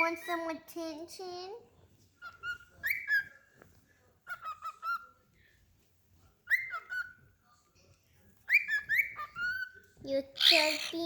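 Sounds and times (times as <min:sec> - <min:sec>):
cockatiel whistling: 0:02.2 - 0:03.4, 0:06.4 - 0:07.2, 0:08.5 - 0:09.8.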